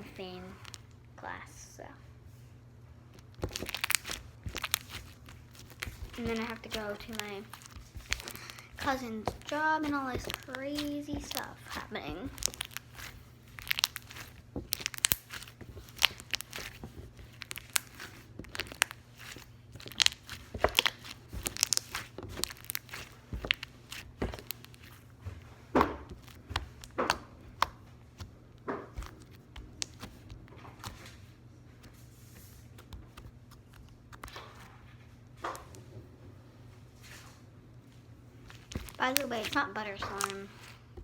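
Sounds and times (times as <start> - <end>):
slime clicking and popping: 3.2 - 25.0, 25.8 - 31.1, 32.8 - 34.6, 38.5 - 40.7.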